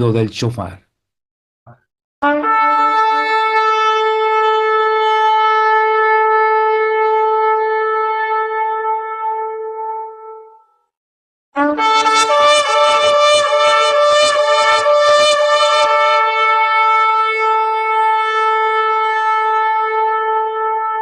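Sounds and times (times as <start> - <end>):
shofar blasts: 2.2 - 10.6, 11.6 - 21.0.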